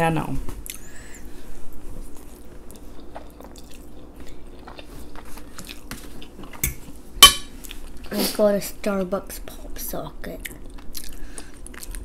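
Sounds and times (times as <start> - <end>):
person chewing spaghetti: 0.6 - 6.6, 10.4 - 12.0.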